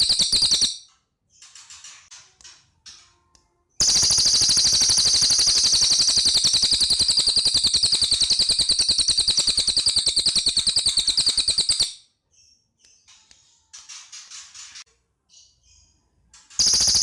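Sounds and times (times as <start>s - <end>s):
bird singing fast high trill: 0.0s - 0.8s, 3.8s - 12.0s, 16.6s - 17.0s.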